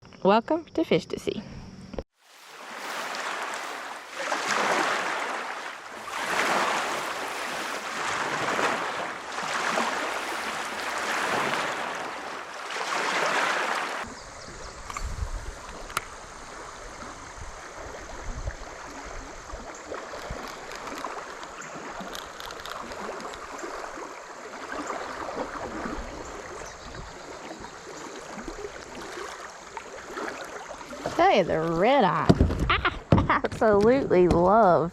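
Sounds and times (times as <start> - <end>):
river water rushing: 2.2 - 14.1, 16.1 - 32.2
wind rumbling on microphone: 14.0 - 24.0, 25.1 - 28.7, 30.9 - 34.9.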